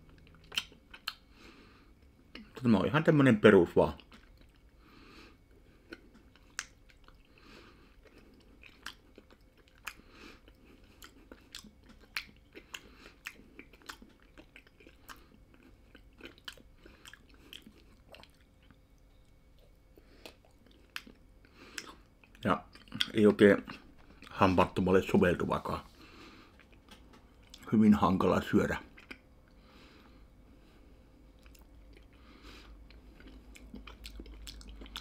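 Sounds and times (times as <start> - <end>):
crunchy snack chewing: 5.7 - 18.8, 31.4 - 35.0.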